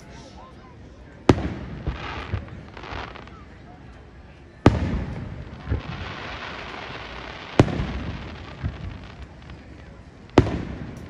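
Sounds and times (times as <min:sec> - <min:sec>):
fireworks bangs with echo: 0:01.2 - 0:11.0.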